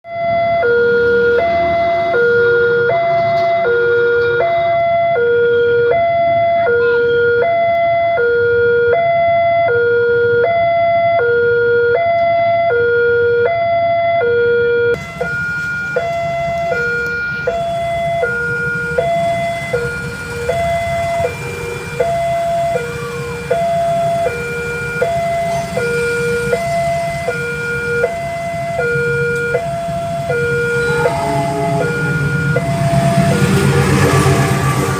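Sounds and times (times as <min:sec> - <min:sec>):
two-tone level crossing alarm: 0:00.0 - 0:34.9
traffic rumble and hiss: 0:15.0 - 0:34.9.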